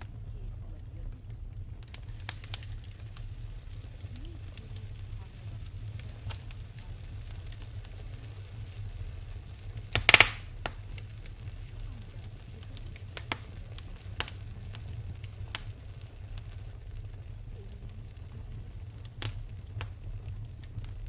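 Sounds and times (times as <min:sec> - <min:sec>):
low rumble: 0:00.0 - 0:21.0
wood fire crackling and popping: 0:00.0 - 0:21.0.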